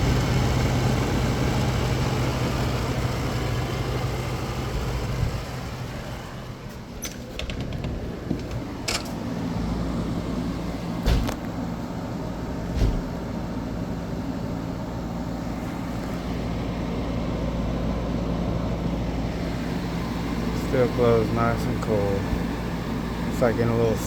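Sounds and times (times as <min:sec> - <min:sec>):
air conditioner humming: 0:00.0 - 0:24.0.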